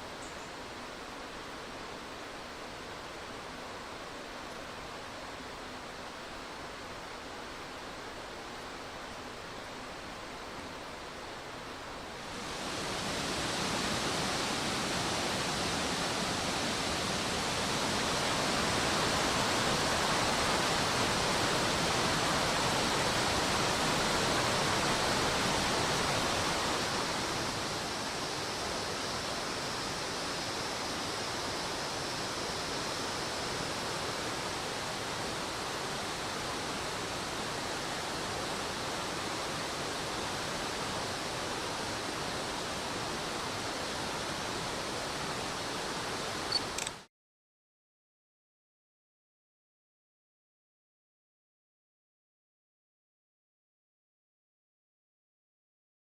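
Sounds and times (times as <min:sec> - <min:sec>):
rushing water of stream rapids: 0:00.0 - 0:47.1.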